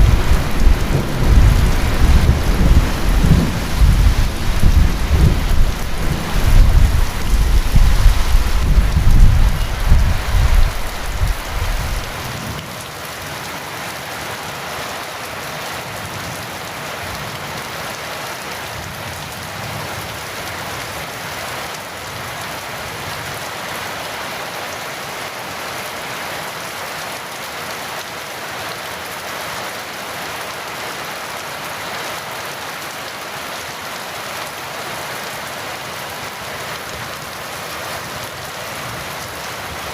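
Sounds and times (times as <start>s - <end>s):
thunder rumbling: 0.0s - 12.3s
heavy rain: 0.0s - 39.9s.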